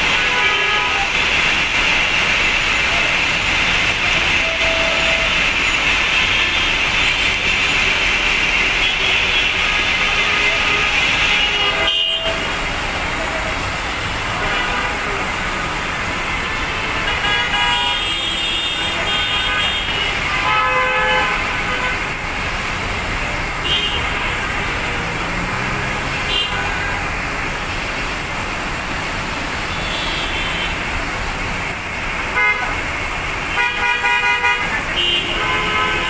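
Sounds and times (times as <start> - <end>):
vehicle horns honking: 0.0 - 1.2, 4.2 - 7.8, 8.7 - 12.6, 16.8 - 22.1, 23.6 - 24.8, 26.0 - 28.0, 29.7 - 30.8, 32.3 - 36.0
heavy rain falling: 0.0 - 20.5, 21.1 - 36.0.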